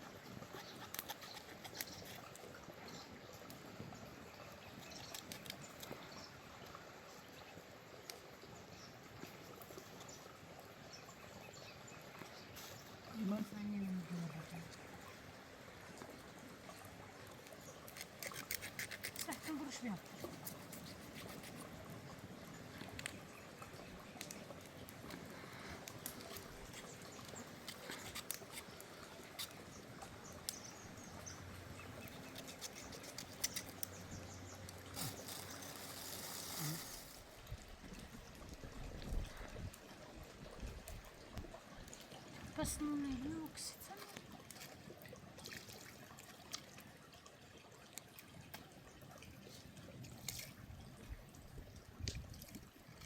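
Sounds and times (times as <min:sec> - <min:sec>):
faint trickling water: 0:00.0 - 0:53.0
light clicks and crackles: 0:00.4 - 0:03.6, 0:04.7 - 0:06.7, 0:15.9 - 0:21.8, 0:22.6 - 0:39.9, 0:40.5 - 0:46.8, 0:47.9 - 0:48.7, 0:49.4 - 0:51.1, 0:51.8 - 0:53.0.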